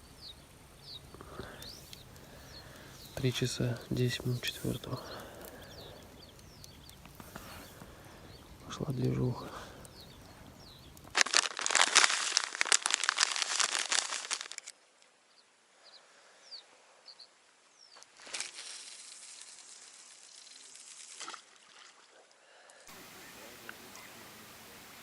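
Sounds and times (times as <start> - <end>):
faint bird chirps: 0.0 - 11.0, 15.1 - 18.1
crackling rustle: 0.0 - 15.2, 17.4 - 25.0.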